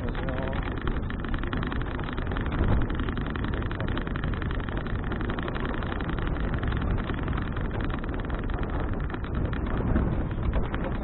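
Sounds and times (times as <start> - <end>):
wind on camera microphone: 0.0 - 11.0.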